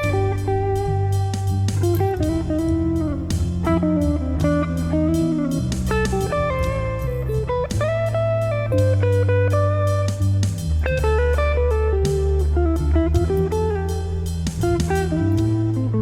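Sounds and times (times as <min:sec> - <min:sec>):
programmed drums and percussion: 0:00.0 - 0:09.2, 0:13.2 - 0:15.9
electric bass line: 0:00.0 - 0:16.0
electric guitar melody: 0:00.0 - 0:16.0.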